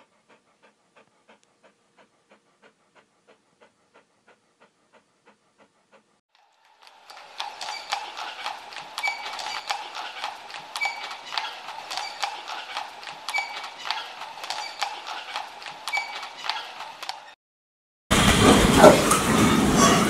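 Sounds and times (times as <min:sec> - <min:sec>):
horse hooves trotting: 0:06.6 - 0:17.3.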